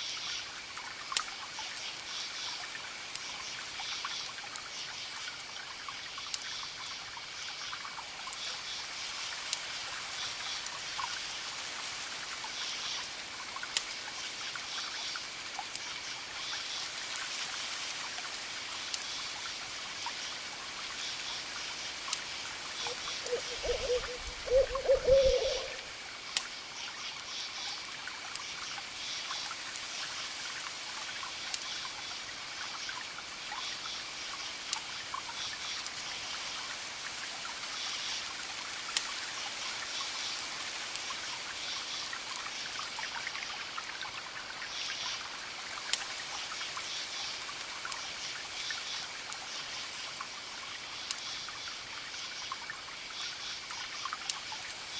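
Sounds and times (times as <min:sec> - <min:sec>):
campfire crackling and popping: 0:12.5 - 0:14.1, 0:25.4 - 0:26.7
crickets chirping: 0:21.0 - 0:27.8
low hoots: 0:22.9 - 0:25.9.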